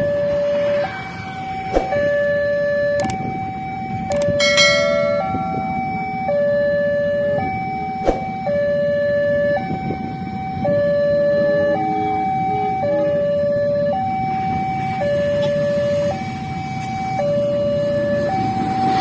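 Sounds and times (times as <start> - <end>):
low engine rumble: 0.0 - 19.0
level crossing two-tone alarm: 1.9 - 19.0
sharp click: 3.0 - 3.2, 4.1 - 4.3.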